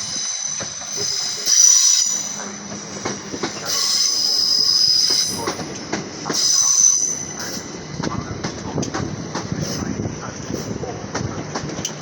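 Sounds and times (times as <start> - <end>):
train wheels squealing: 0.0 - 5.7, 6.3 - 7.7
train rumble: 0.0 - 12.0.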